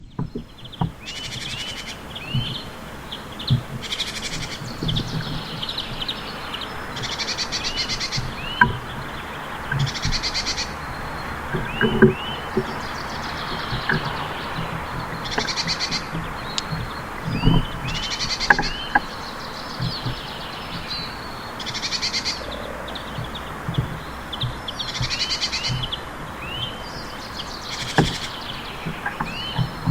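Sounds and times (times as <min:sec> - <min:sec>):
songbirds singing: 0:00.0 - 0:29.9
low knocks: 0:08.2 - 0:21.2, 0:22.4 - 0:26.7, 0:27.8 - 0:29.9.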